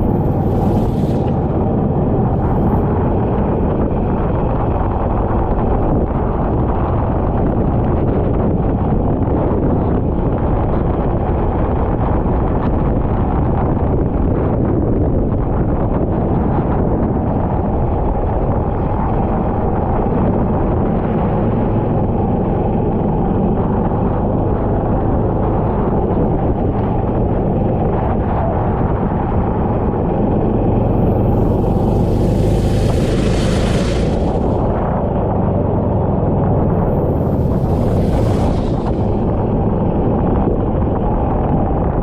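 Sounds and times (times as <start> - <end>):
wind noise on microphone: 0.0 - 42.0
go-kart engine running: 17.7 - 42.0
hiss: 31.4 - 34.8, 37.2 - 39.3.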